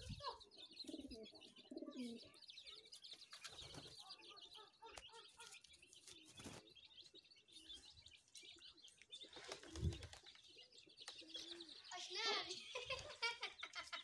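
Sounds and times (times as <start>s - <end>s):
faint bird chirping: 0.0s - 14.0s.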